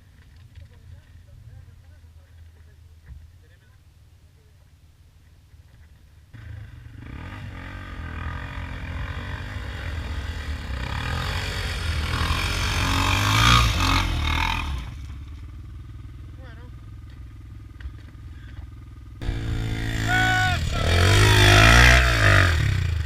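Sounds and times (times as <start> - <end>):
motorcycle engine accelerating: 5.7 - 23.0.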